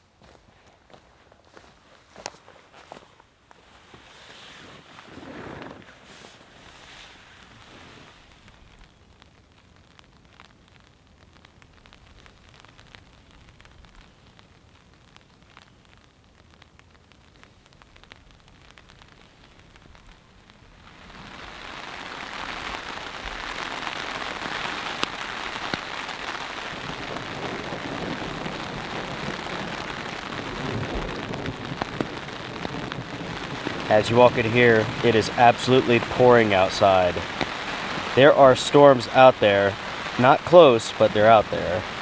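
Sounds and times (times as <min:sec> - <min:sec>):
heavy rain: 0:17.0 - 0:42.0.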